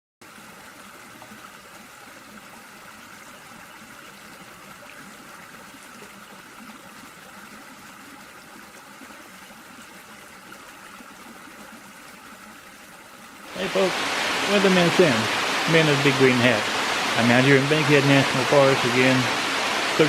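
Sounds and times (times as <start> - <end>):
water pouring over small waterfall: 4.2 - 20.0.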